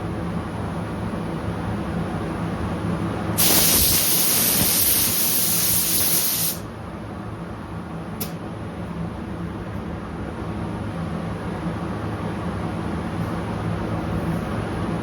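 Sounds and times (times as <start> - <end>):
paint spray gun hissing: 3.4 - 6.6.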